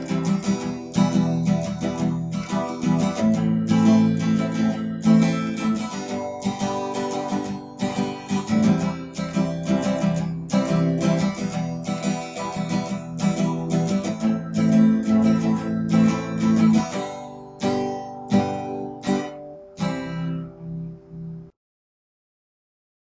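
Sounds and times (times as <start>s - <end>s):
acoustic guitar strumming chords: 0.0s - 21.5s.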